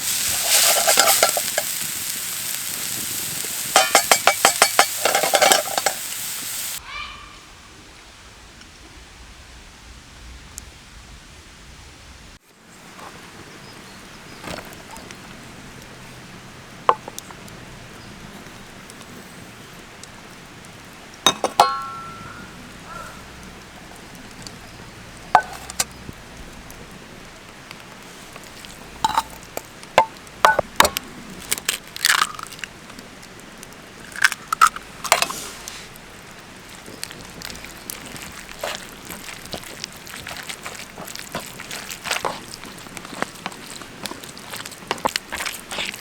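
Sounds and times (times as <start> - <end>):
food crunching and squishing: 0.0 - 6.4, 21.8 - 46.0
utensils and bowls clinking: 0.3 - 1.8, 3.7 - 6.1, 21.3 - 23.2, 25.4 - 25.9, 29.0 - 31.0.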